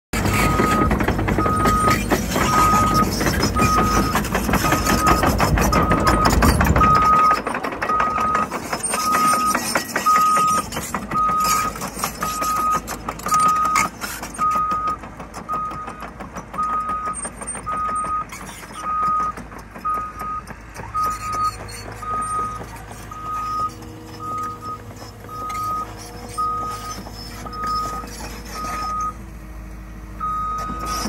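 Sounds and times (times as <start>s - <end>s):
diesel engine: 0.1s - 31.0s
machine clatter: 0.2s - 23.1s
excavator travel alarm beeping: 0.2s - 29.2s, 30.2s - 31.0s.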